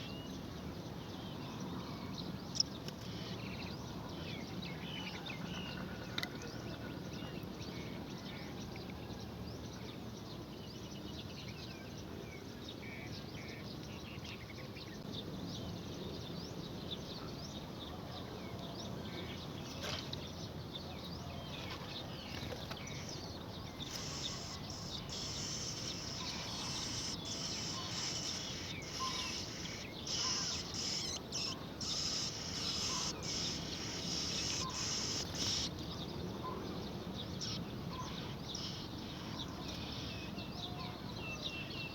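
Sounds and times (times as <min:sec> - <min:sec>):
outdoor background noise: 0:00.0 - 0:41.9
small birds chirping: 0:21.5 - 0:40.1.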